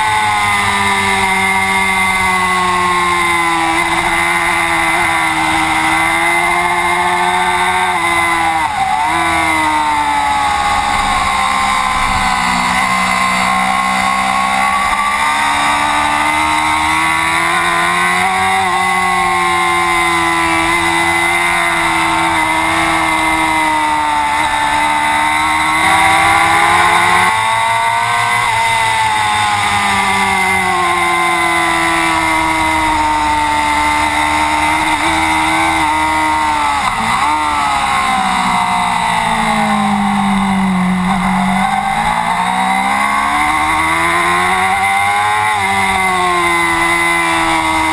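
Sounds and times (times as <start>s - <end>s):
racing motorcycle engine: 0.0s - 47.9s.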